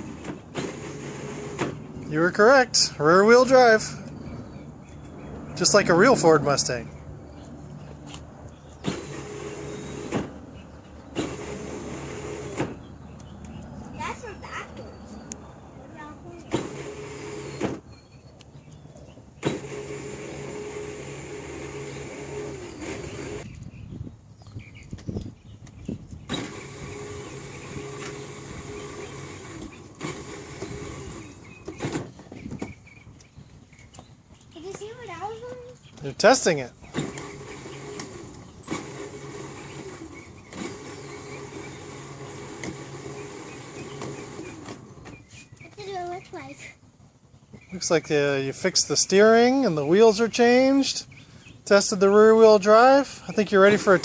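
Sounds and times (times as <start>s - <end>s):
electric toy motor whirring: 0.0s - 1.8s, 8.9s - 10.2s, 11.1s - 12.8s, 16.5s - 17.8s, 19.4s - 23.5s, 26.3s - 32.1s, 36.9s - 45.2s.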